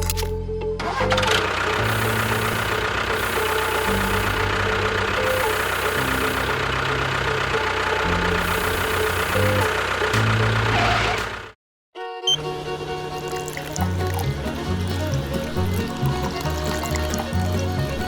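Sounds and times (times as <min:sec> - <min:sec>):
small engine knocking rattle: 0:00.9 - 0:11.5, 0:13.2 - 0:18.0
background music: 0:13.2 - 0:18.0.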